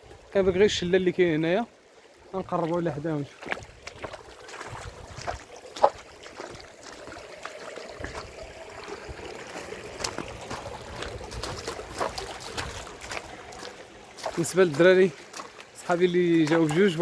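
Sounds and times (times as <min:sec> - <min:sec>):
footsteps outdoors: 0:00.0 - 0:17.0
running water and small waterfall: 0:00.0 - 0:17.0
wind rumble on microphone: 0:03.5 - 0:05.5, 0:10.0 - 0:13.2.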